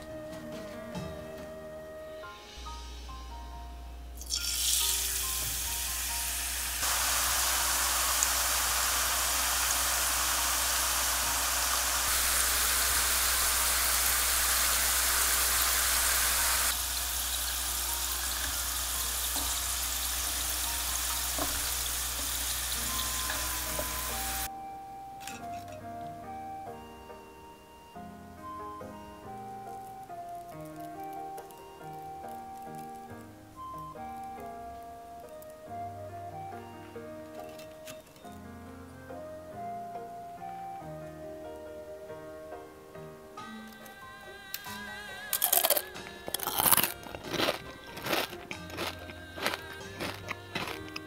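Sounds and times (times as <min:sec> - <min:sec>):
lotus root frying in hot oil: 0:04.2 - 0:24.5.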